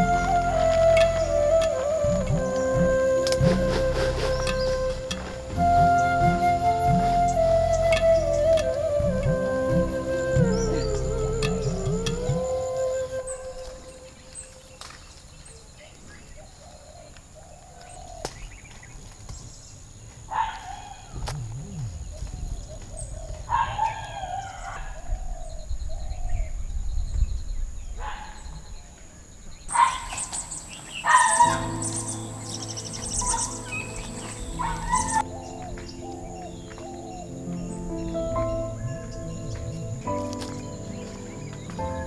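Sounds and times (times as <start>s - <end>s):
soft background music: 0.0s - 14.8s, 29.7s - 42.0s
birds chirping and calling: 29.7s - 42.0s.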